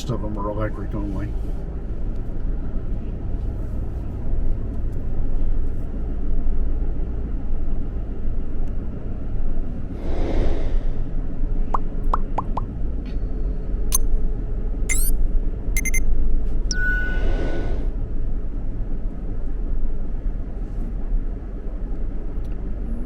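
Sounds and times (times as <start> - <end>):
vehicle engine rumble: 0.0 - 23.0
short rising chirps: 14.9 - 15.1, 15.8 - 16.0, 16.7 - 17.8.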